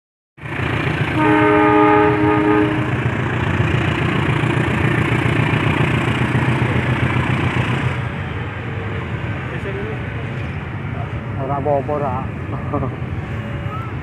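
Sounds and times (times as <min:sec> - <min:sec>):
train running: 0:00.4 - 0:14.0
train horn blast: 0:01.1 - 0:03.1.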